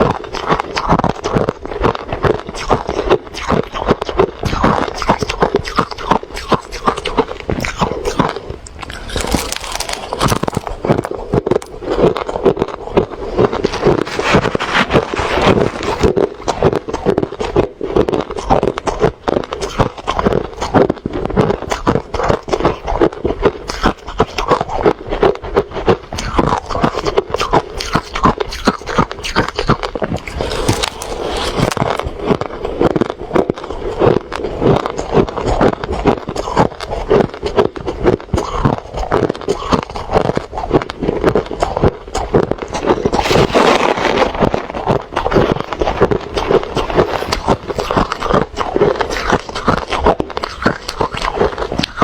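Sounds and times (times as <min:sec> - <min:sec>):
crushed ice being chewed: 0:00.0 - 0:52.0.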